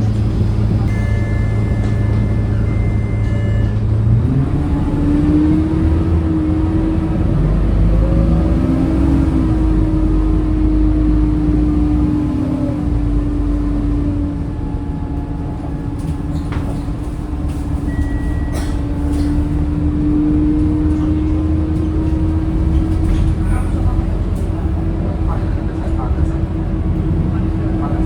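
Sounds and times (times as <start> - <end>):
bus engine rumble: 0.0 - 28.0
drivetrain whine: 0.0 - 28.0.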